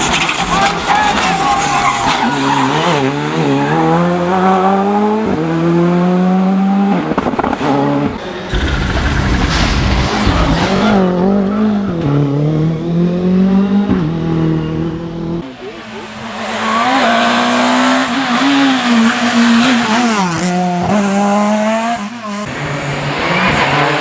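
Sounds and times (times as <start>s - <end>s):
exhaust cracks: 0.0s - 5.4s, 7.0s - 12.2s
rally car engine revving: 0.0s - 24.0s.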